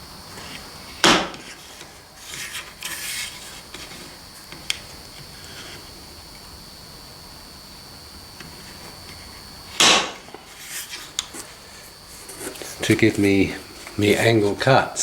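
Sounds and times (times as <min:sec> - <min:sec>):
wood rubbing and scraping: 0:00.3 - 0:06.1, 0:10.2 - 0:14.9
blade chopping wooden stick: 0:09.8 - 0:10.2.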